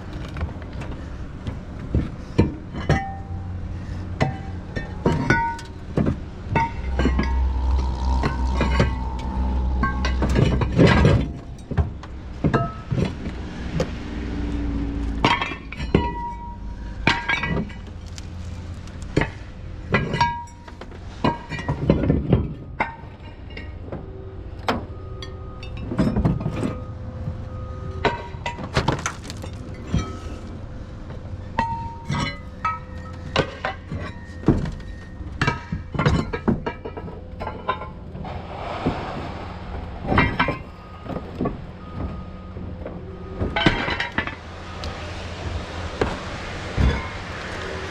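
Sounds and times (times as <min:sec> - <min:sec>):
metal clanks and bangs: 0:00.4 - 0:13.5, 0:15.2 - 0:18.5, 0:19.1 - 0:44.8, 0:45.4 - 0:47.9
low rumble: 0:03.6 - 0:13.5, 0:37.5 - 0:43.5
glass clinking and breaking: 0:28.0 - 0:30.4.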